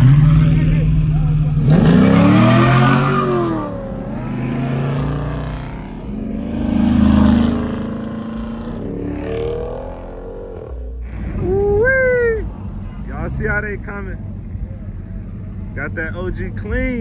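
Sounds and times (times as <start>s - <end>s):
engine revving: 0.0s - 11.2s
cars driving away: 0.0s - 17.0s.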